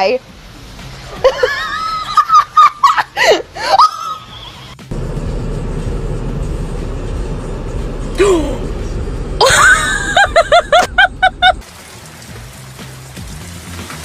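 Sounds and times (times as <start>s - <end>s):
laughter: 1.1s - 4.8s, 9.4s - 11.6s.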